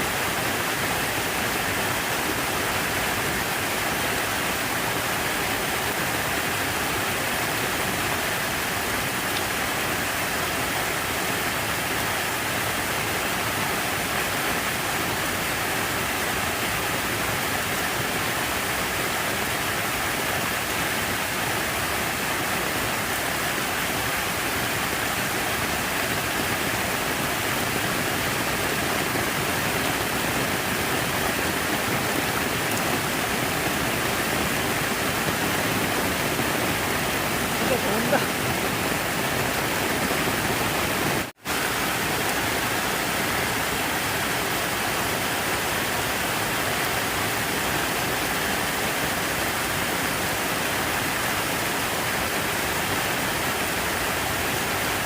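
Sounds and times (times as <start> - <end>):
falling splashing water: 0.0 - 55.0.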